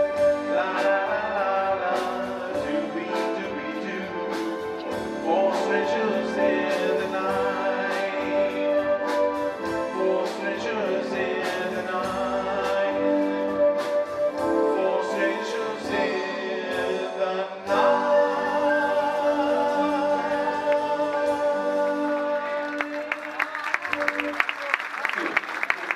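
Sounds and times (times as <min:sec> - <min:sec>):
live band playing instrumental: 0:00.0 - 0:25.9.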